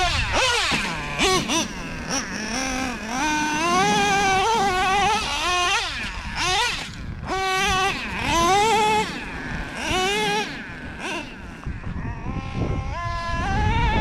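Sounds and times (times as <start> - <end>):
nitro engine revving with whine: 0.0 - 14.0.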